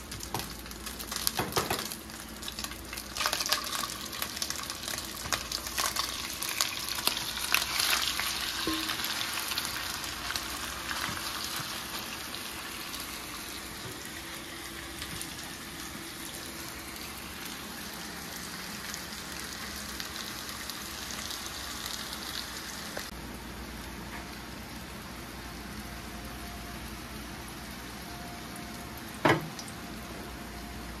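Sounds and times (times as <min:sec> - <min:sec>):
stir-fry sizzling in a pan: 0:00.0 - 0:31.0.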